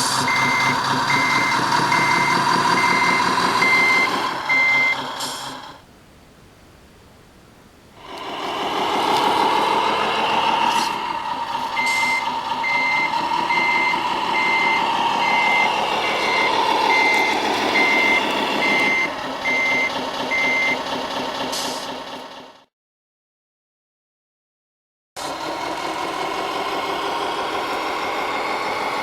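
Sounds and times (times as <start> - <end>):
simulated engine sound: 0.0 - 5.8, 8.2 - 22.7, 25.2 - 29.0
reversing beeper beeps: 0.2 - 5.0, 11.7 - 20.8.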